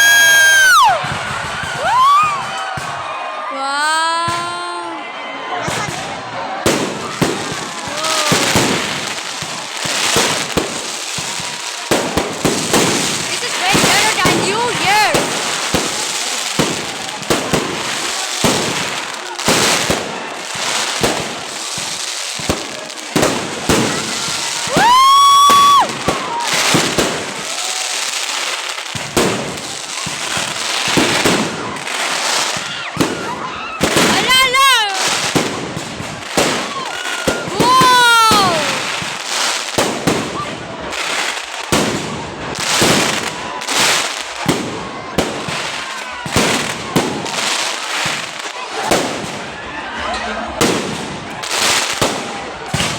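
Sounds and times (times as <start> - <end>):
fireworks bangs: 0.0 - 4.8, 5.6 - 52.9
fireworks crackling: 0.0 - 52.9.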